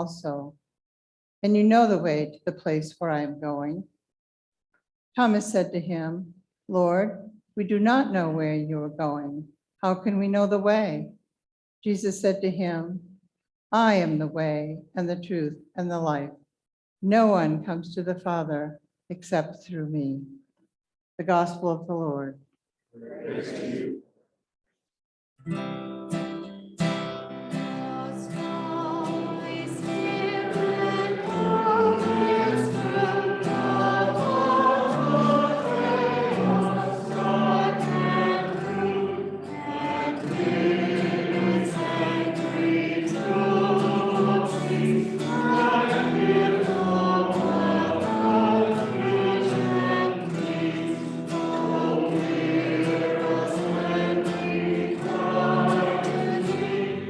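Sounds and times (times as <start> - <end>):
group singing a hymn: 23.0 - 24.0, 27.5 - 57.0.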